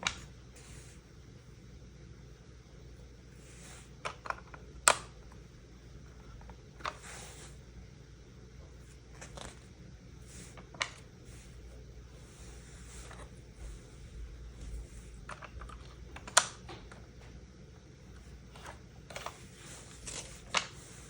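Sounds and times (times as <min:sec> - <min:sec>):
soft rustling: 0:10.2 - 0:15.3.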